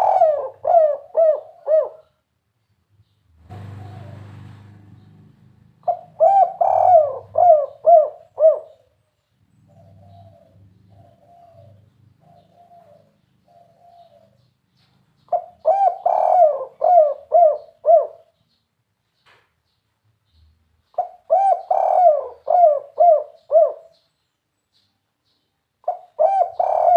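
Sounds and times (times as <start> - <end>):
dove cooing: 0.0 - 2.2, 3.5 - 5.2, 5.8 - 9.0, 9.6 - 14.5, 15.2 - 18.4, 20.9 - 24.1, 25.8 - 26.9.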